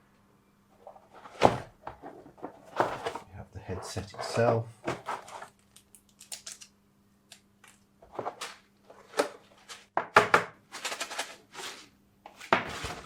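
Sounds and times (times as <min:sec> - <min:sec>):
packaging rustling and clicking: 0:10.8 - 0:11.8.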